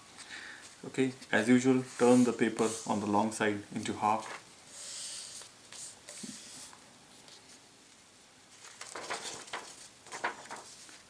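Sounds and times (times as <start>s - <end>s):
paper rustling: 8.5s - 11.0s
paper crackling as creased: 8.6s - 11.0s.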